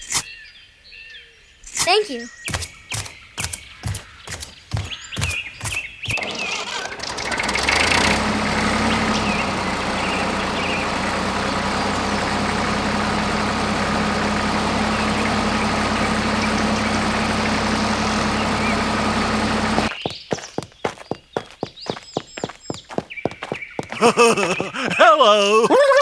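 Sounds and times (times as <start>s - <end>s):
motor humming: 2.5s - 19.9s.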